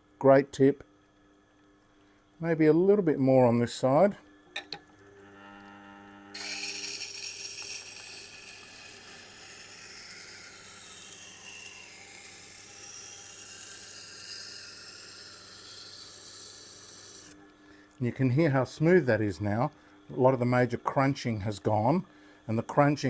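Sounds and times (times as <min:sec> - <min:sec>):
grinder motor humming: 0:04.8 - 0:19.8
knife grinding on stone wheel: 0:05.2 - 0:17.4.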